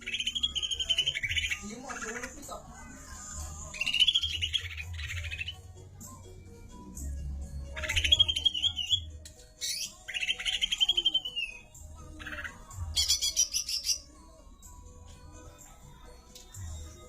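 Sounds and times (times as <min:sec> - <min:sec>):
songbird trilling: 0:00.0 - 0:02.4, 0:07.8 - 0:14.1.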